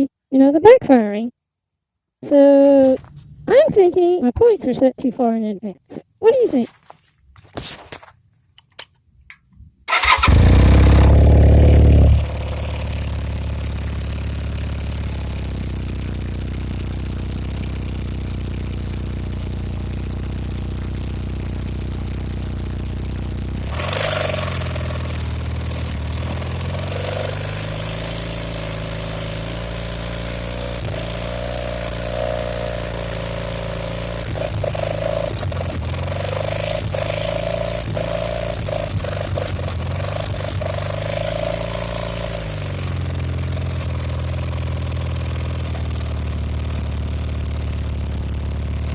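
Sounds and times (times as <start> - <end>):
engine backfiring: 9.9 - 48.9
motorcycle engine revving: 9.9 - 48.9.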